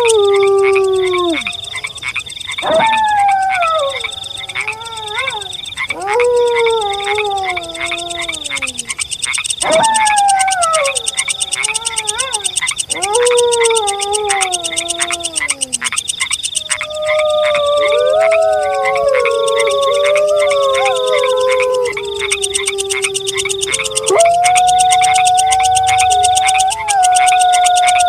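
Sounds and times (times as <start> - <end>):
wolf howling: 0.0 - 9.0, 9.6 - 15.9, 16.6 - 28.0
pulsing insect night chorus: 0.0 - 28.0.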